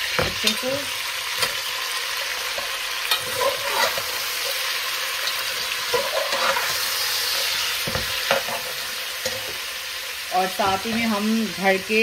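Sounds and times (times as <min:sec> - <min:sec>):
chicken sizzling in hot oil: 0:00.0 - 0:12.0
metal spoon scraping a pot: 0:02.5 - 0:09.6.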